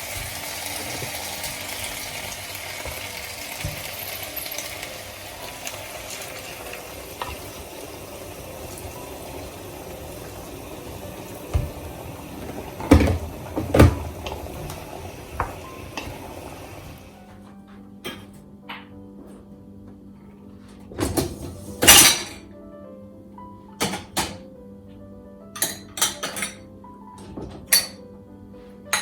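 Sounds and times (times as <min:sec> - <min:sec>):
food sizzling in a frying pan: 0:00.0 - 0:17.2.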